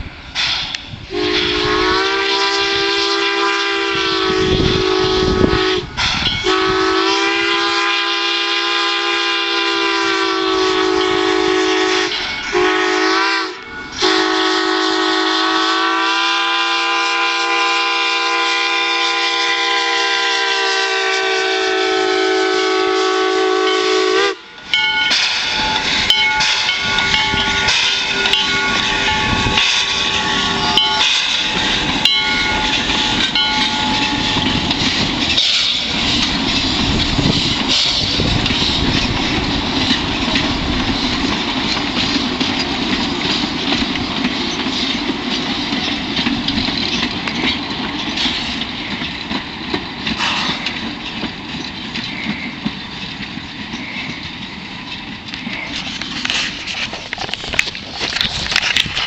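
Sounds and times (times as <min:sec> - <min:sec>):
train wheels on rail clickety-clack: 0:00.0 - 0:59.0
steam whistle chord: 0:01.1 - 0:34.8.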